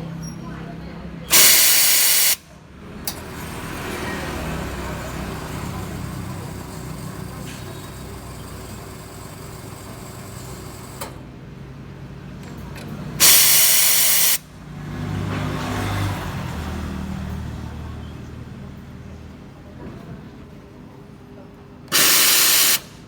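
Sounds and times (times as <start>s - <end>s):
steam wand hissing: 1.3s - 2.4s, 13.2s - 14.4s, 21.9s - 23.0s.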